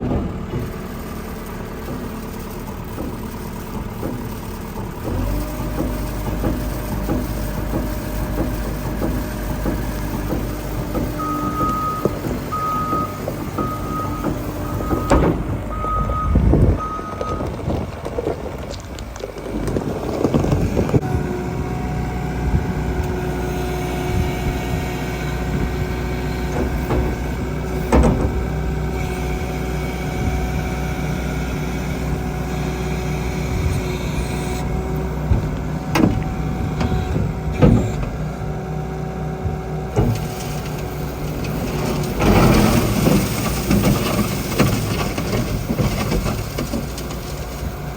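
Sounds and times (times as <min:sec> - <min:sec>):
machine clunks and knocks: 0:00.0 - 0:18.5, 0:24.1 - 0:29.4, 0:33.4 - 0:38.6, 0:39.4 - 0:47.7
skid steer diesel engine: 0:00.0 - 0:47.9
reversing alarm beeping: 0:11.2 - 0:17.6.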